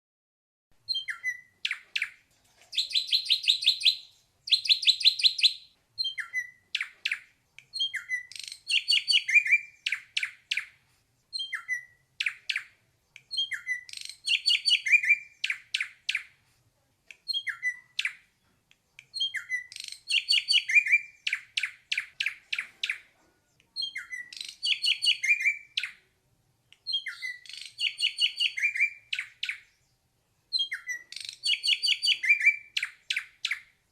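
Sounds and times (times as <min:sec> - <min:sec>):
bird whistling and clicking: 0:00.9 - 0:10.7, 0:11.3 - 0:16.3, 0:17.1 - 0:18.2, 0:19.0 - 0:23.0, 0:23.7 - 0:26.0, 0:26.8 - 0:29.6, 0:30.5 - 0:33.7.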